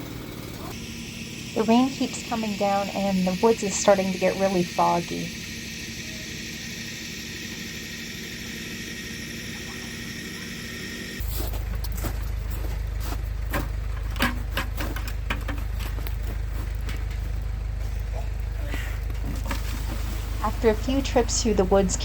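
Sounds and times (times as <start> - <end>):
rain hiss: 19.6 - 22.0.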